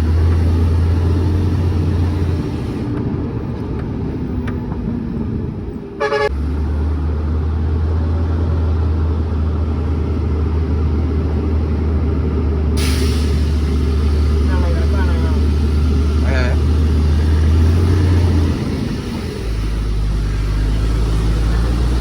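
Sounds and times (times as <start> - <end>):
truck engine droning: 0.0 - 22.0
truck horn toot: 6.0 - 6.4.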